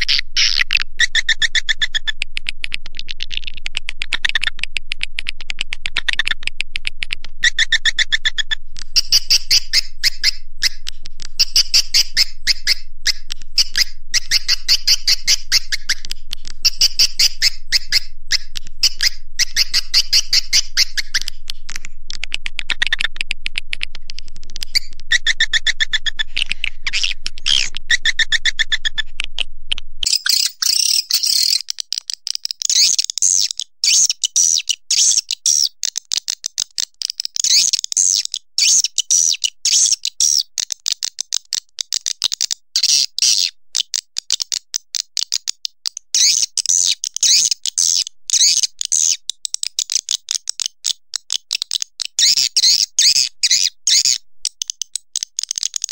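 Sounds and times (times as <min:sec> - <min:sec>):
low hum: 0:00.0 - 0:30.1
swiftlet chirping and clicking: 0:00.0 - 0:55.9.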